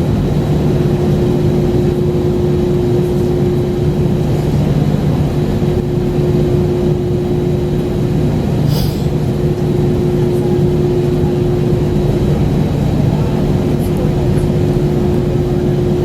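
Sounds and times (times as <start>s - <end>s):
aircraft cabin drone: 0.0s - 16.0s
short hiss: 8.7s - 9.1s.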